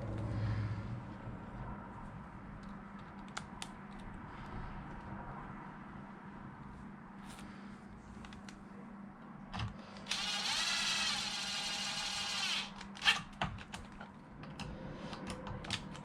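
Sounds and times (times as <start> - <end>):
cordless power screwdriver running: 10.0 - 13.2.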